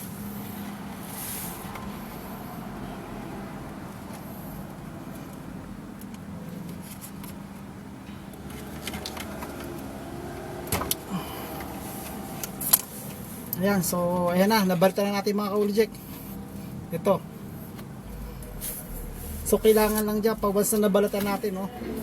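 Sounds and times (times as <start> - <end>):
low background hum: 10.8 - 22.0.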